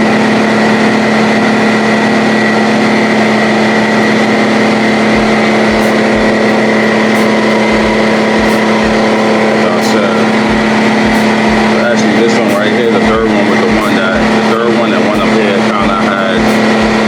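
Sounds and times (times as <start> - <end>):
air compressor motor humming: 0.0 - 17.0
low thumps: 4.1 - 17.0.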